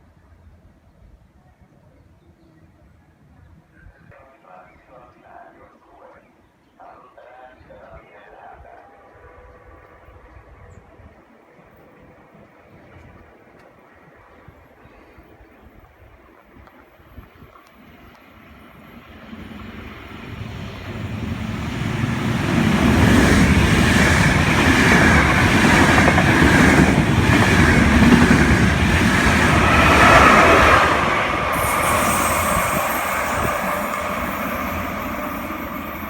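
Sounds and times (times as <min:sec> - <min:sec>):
train running along track: 0:07.9 - 0:36.0.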